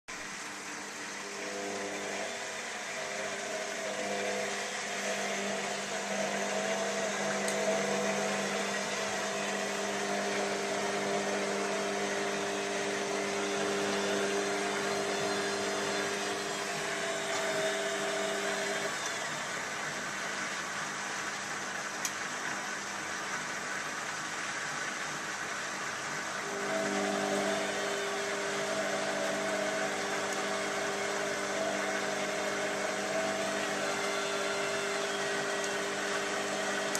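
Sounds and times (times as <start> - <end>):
water rushing into washing machine: 0.1 - 36.9
humming tone: 1.2 - 19.1.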